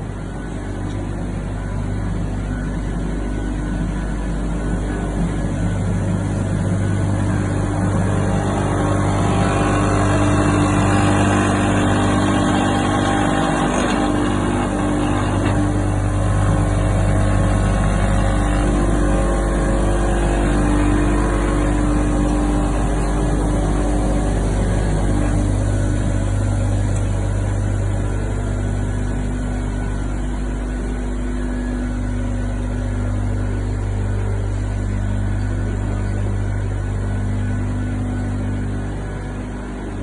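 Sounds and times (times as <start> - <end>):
grinding mill motor humming: 0.0 - 40.0.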